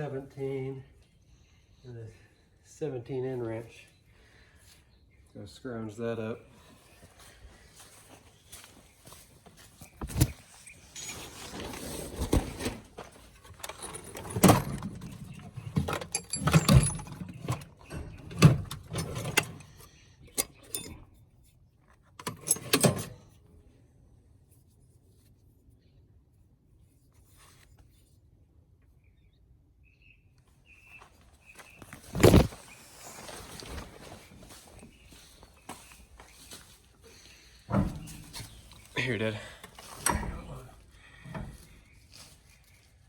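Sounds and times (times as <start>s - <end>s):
metal tools clattering: 10.9s - 21.1s.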